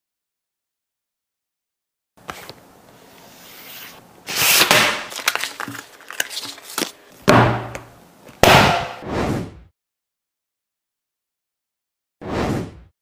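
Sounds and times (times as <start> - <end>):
packaging sliding and rustling: 3.2 - 7.0.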